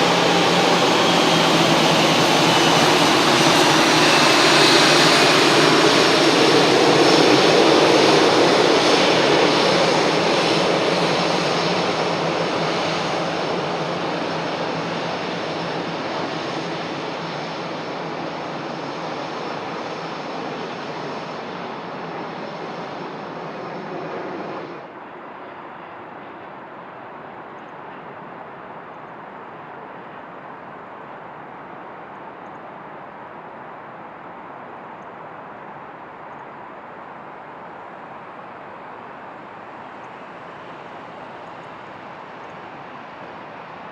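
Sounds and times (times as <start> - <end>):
jet engines at takeoff power: 0.0 - 43.9.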